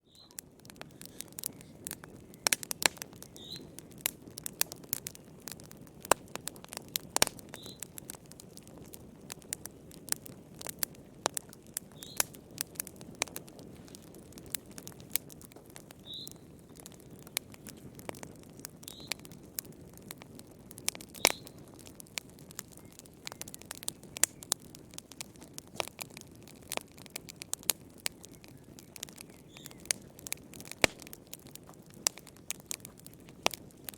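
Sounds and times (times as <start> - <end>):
wood fire crackling and popping: 0.0 - 33.9
low hiss of flames: 0.1 - 33.9.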